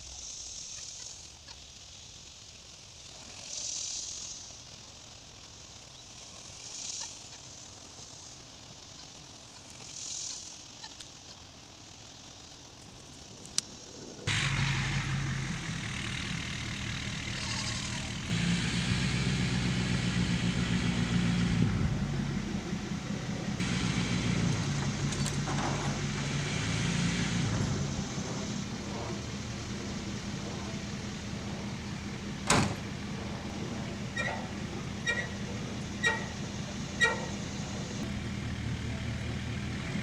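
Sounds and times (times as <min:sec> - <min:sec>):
vehicle engine running: 0:13.7 - 0:40.0.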